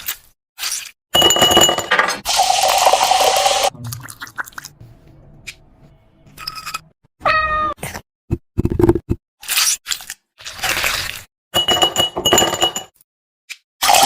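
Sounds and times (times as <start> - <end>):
cat meowing: 7.2 - 7.8.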